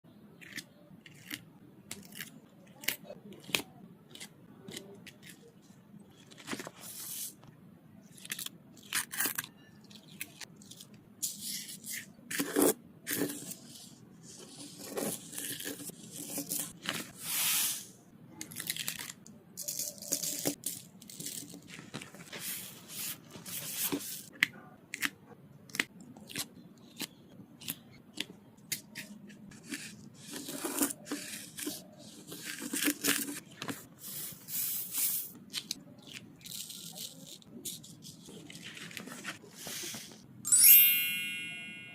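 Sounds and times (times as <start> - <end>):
sand poured and rubbed: 17.1 - 18.0.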